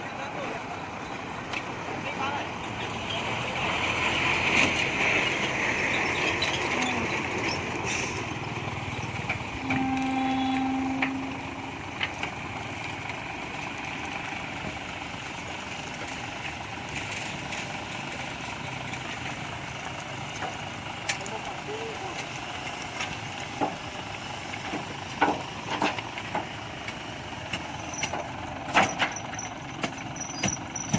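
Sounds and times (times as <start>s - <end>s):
diesel truck engine running: 0.0s - 30.9s
steady pitched tone: 9.6s - 11.9s.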